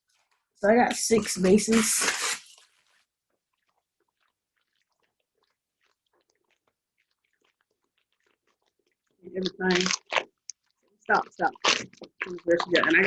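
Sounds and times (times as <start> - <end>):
faint clicks and rustles: 1.4 - 11.2.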